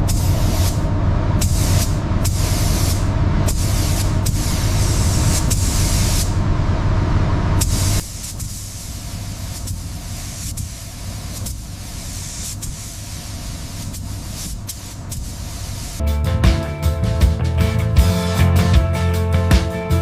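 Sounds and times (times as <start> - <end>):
spraying hiss bursts: 0.0 - 6.4, 7.6 - 16.0
low motor rumble: 0.0 - 8.0.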